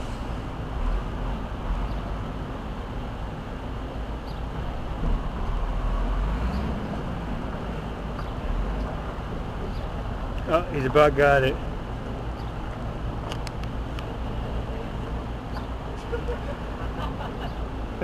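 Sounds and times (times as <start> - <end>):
truck diesel engine rumbling: 0.0 - 18.0.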